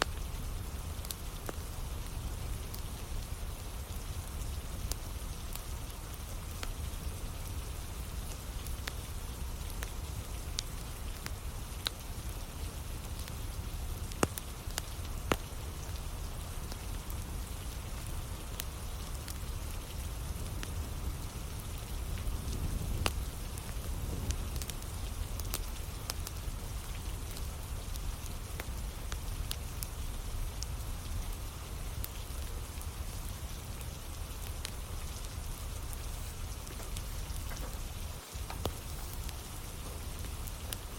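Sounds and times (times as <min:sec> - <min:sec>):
steady rain falling: 0:00.0 - 0:40.9
wood fire crackling: 0:00.0 - 0:40.9.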